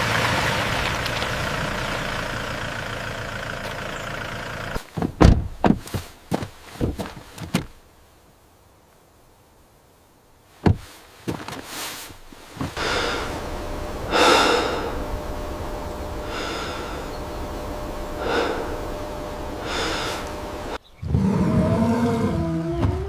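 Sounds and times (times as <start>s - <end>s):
low rumble: 12.4s - 20.8s
breathy snorts: 12.7s - 13.4s, 14.1s - 15.0s, 16.3s - 17.2s, 18.1s - 18.9s, 19.5s - 20.8s.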